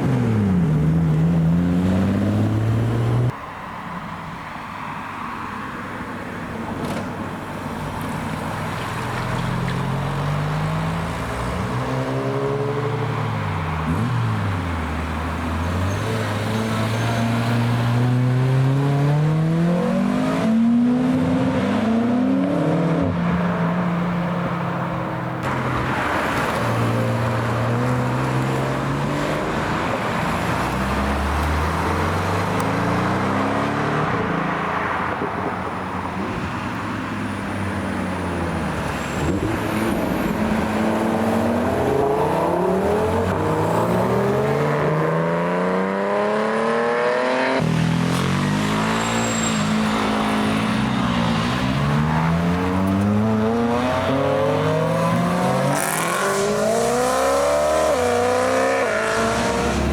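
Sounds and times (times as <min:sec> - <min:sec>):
sports cars accelerating: 0:00.0 - 0:03.4, 0:09.4 - 0:35.3, 0:38.4 - 0:59.9.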